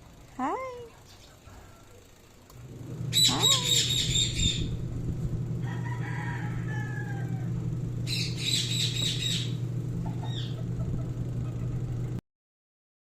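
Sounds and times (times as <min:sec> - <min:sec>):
low hum: 0:00.0 - 0:12.2
parrot chirps: 0:03.1 - 0:04.7, 0:08.1 - 0:10.6
parrot squawking: 0:03.1 - 0:04.7, 0:08.0 - 0:10.7.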